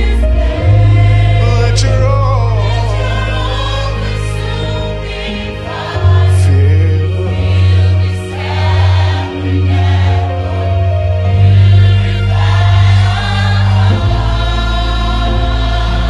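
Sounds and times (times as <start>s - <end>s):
heavy sustained bass line: 0.0s - 5.2s, 11.2s - 16.0s
choir singing with band: 0.0s - 16.0s.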